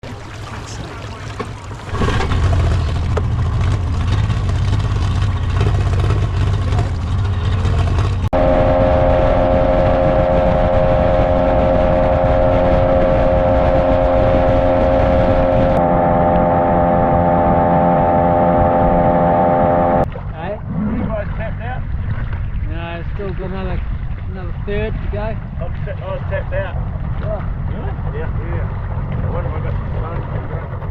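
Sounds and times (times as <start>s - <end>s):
jet boat engine running: 0.0s - 20.7s
steady motor drone: 2.2s - 20.1s.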